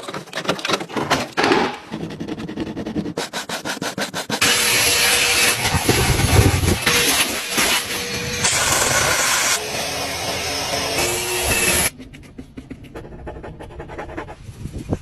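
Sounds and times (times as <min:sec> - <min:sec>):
brush scrubbing car surface: 0:02.3 - 0:04.4.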